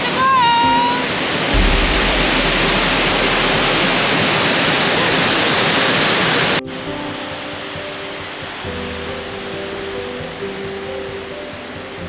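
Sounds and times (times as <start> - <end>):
background music with held notes: 0.0 - 12.0
waterfall rushing: 1.5 - 6.6.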